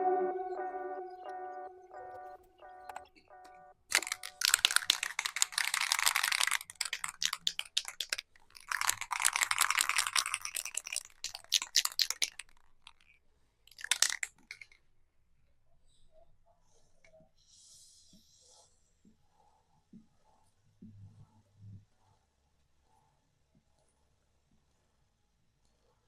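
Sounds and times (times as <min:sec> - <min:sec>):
scattered clicks: 0:02.9 - 0:13.1.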